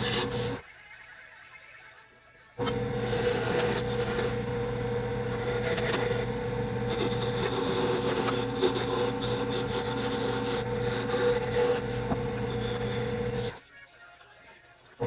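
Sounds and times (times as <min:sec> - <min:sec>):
turning tool scraping wood: 0:00.0 - 0:00.6, 0:02.6 - 0:04.6, 0:05.2 - 0:13.6
wood lathe motor hum: 0:02.6 - 0:13.6.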